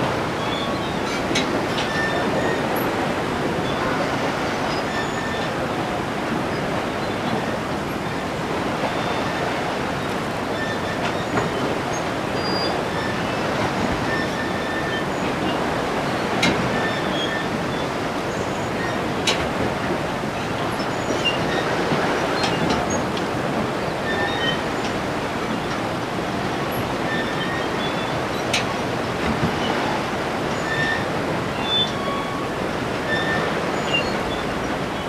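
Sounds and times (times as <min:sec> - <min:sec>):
sea waves washing: 0:00.0 - 0:35.0.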